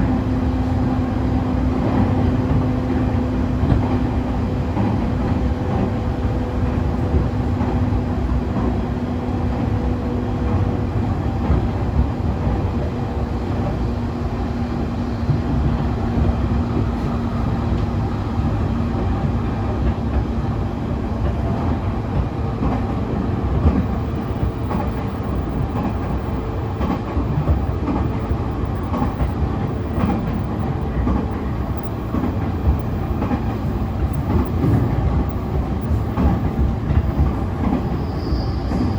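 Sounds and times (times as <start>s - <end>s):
train interior rumble: 0.0s - 38.9s
rail clatter: 15.3s - 38.9s.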